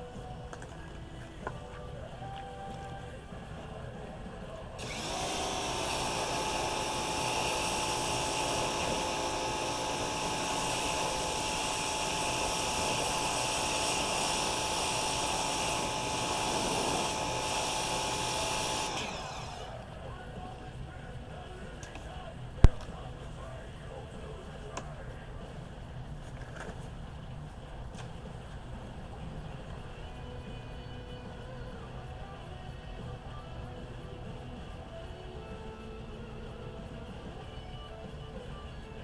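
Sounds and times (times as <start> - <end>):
power tool whining: 4.8 - 19.9.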